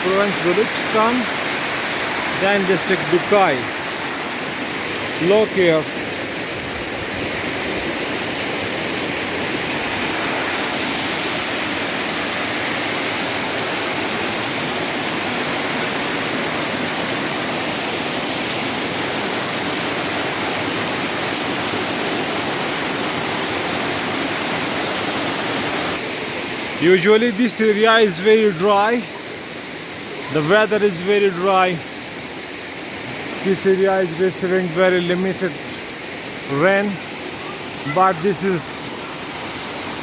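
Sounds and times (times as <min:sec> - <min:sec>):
waterfall pouring: 0:00.0 - 0:26.2.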